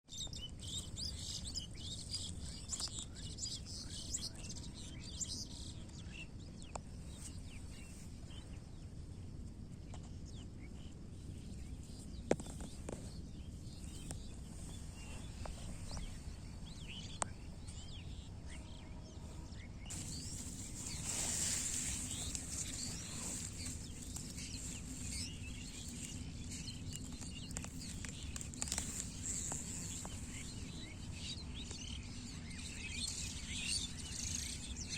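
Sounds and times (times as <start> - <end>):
low steady background noise: 0.1 - 34.9
birds chirping: 9.9 - 34.9.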